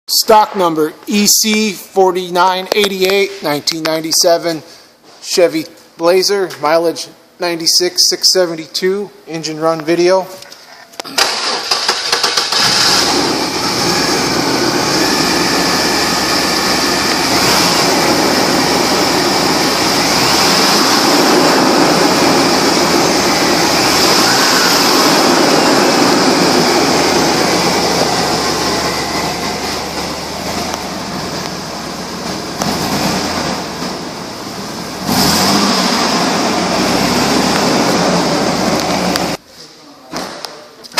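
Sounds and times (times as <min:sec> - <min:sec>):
car engine idling: 0:11.2 - 0:39.4.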